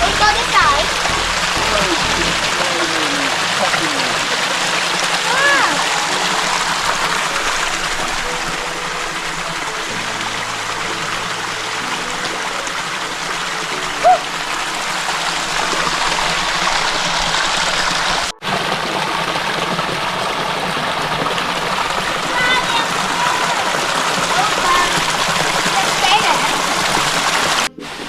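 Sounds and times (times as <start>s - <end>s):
water splashing down small waterfall: 0.0s - 28.0s.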